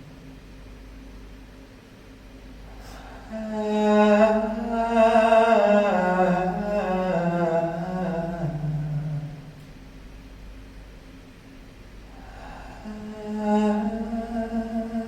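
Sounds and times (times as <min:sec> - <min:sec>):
low voice chanting: 0:02.8 - 0:09.7, 0:12.1 - 0:15.0.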